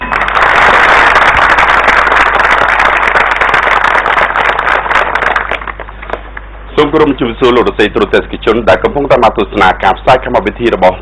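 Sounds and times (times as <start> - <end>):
crowd clapping: 0.0 - 6.5.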